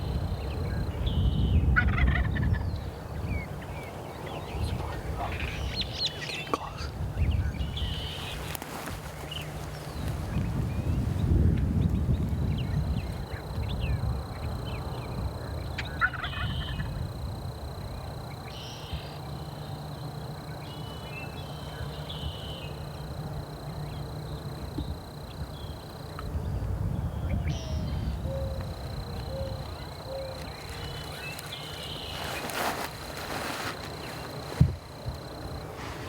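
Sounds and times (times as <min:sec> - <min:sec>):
faint bird calls: 0:00.0 - 0:10.5.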